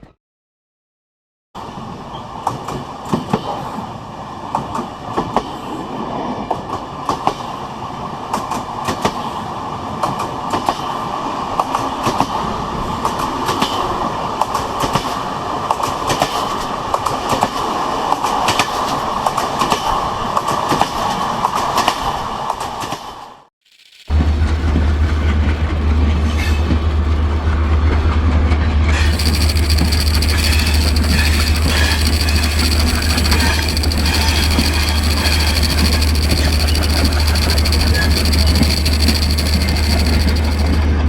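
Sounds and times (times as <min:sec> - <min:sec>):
clattering clicks of wheels: 0:29.0 - 0:41.0
train wheels rumbling: 0:29.1 - 0:41.0.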